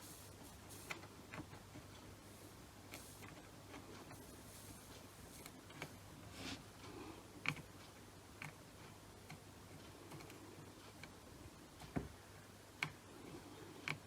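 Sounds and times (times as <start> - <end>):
light ticks and taps of tools: 12.8 - 13.0.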